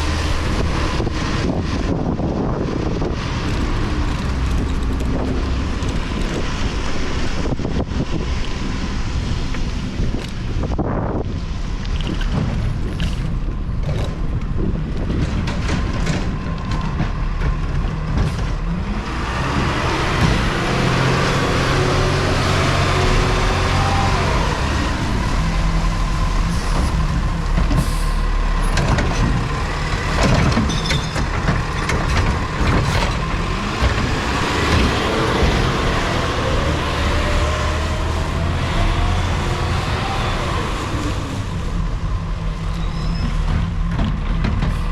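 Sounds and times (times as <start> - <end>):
garbage truck engine revving: 12.4 - 44.9.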